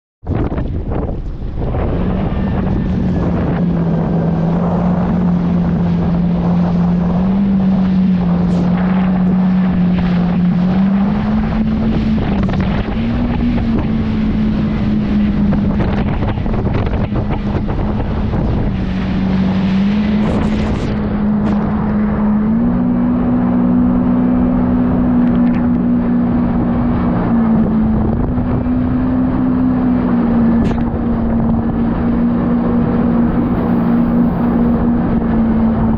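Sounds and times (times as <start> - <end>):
wind buffeting microphone: 0.2 - 35.9
jet ski engine droning: 0.3 - 35.9.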